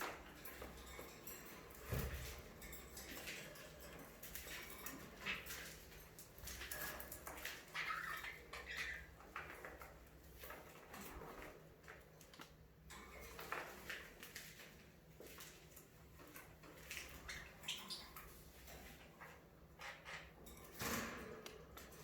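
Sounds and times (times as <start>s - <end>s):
budgerigars chirping: 7.8s - 9.1s.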